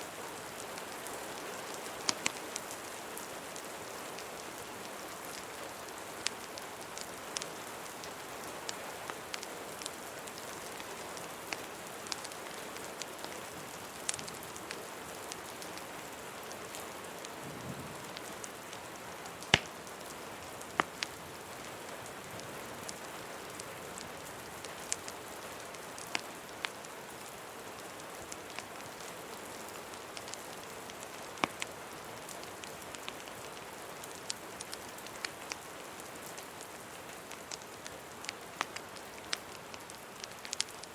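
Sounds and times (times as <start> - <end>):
rain hiss: 0.0 - 40.9
wood fire popping and crackling: 0.5 - 40.9.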